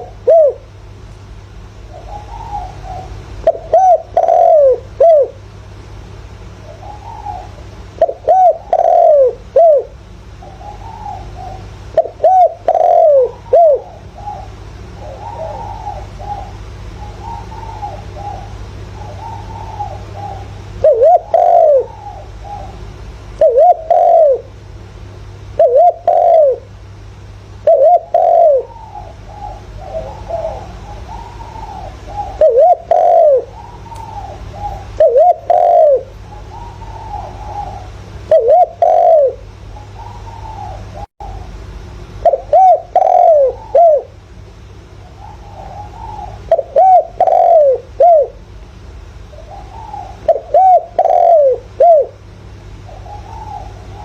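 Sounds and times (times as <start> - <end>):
dove cooing: 0.0 - 1.0, 1.6 - 5.8, 6.4 - 24.6, 25.4 - 54.0
steady low hum: 0.0 - 54.0.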